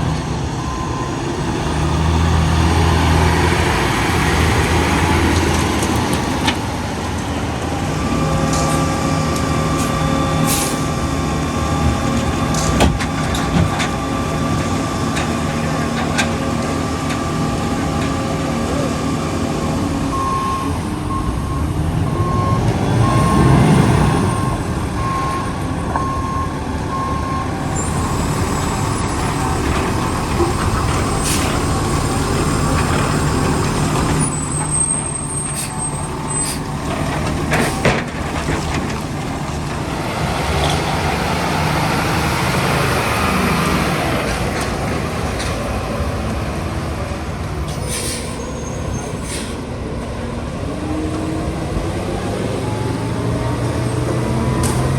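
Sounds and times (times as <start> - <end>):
diesel engine running: 0.0 - 54.9
air brake hisses: 10.5 - 10.9, 47.7 - 49.7
reversing alarm beeping: 20.1 - 29.6.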